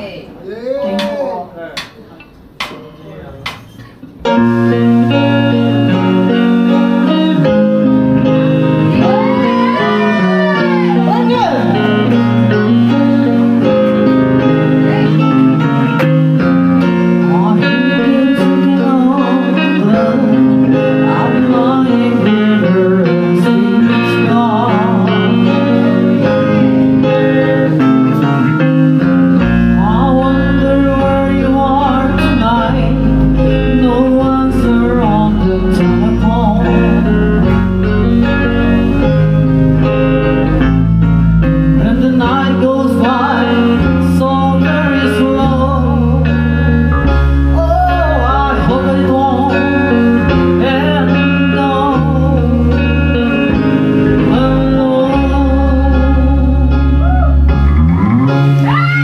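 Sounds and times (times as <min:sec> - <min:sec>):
electric guitar: 0:03.4 - 0:59.0
live rock band playing: 0:03.6 - 0:59.0
heavy bass line: 0:04.2 - 0:59.0
person singing: 0:04.6 - 0:40.7, 0:41.4 - 0:57.8.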